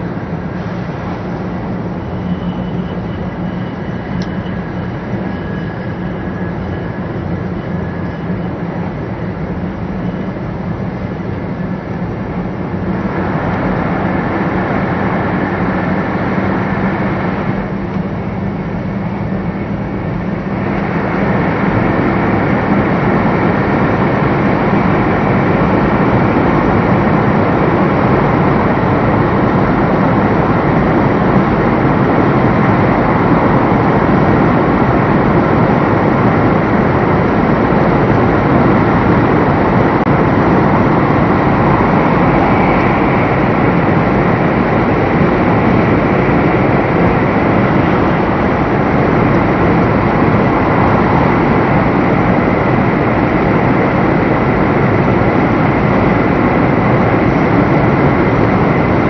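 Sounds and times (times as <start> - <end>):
train rushing at speed: 0.0 - 59.0.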